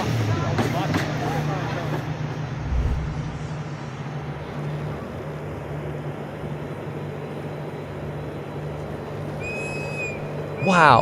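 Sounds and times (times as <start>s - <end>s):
low engine drone: 2.4s - 4.2s
rumble of running noise: 2.6s - 3.8s.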